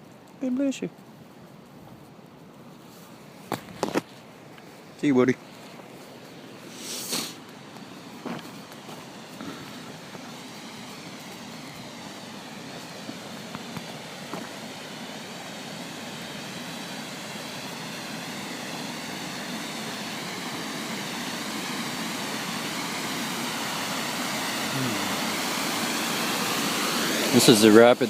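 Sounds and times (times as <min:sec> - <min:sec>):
river rapids rushing: 0:06.4 - 0:28.0.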